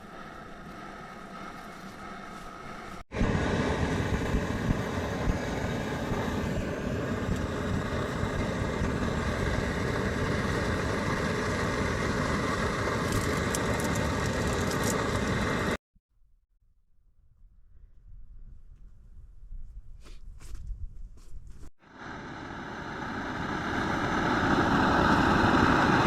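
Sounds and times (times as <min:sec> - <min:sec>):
vehicle engine running: 0:00.0 - 0:15.8.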